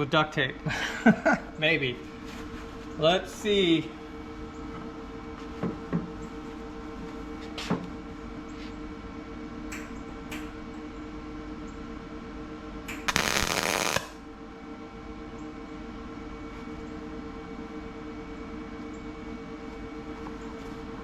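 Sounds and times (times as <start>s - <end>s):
welder steady hum: 12.2s - 14.6s
welder crackling burst: 13.0s - 14.2s.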